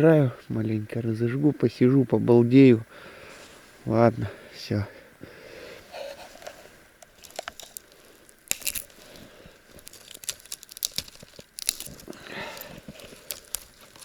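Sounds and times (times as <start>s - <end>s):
twigs snapping: 6.0s - 14.0s.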